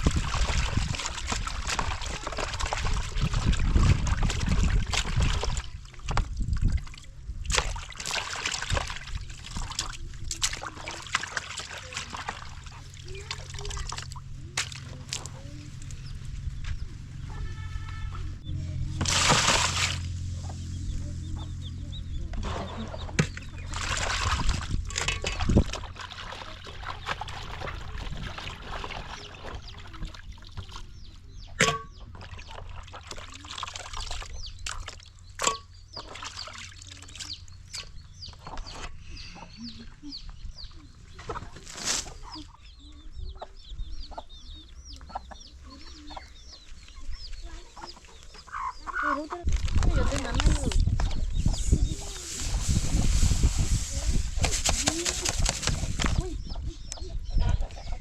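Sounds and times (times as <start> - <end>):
chickens clucking: 20.3 - 23.8, 35.2 - 58.0
rustling handling noises: 52.0 - 56.2.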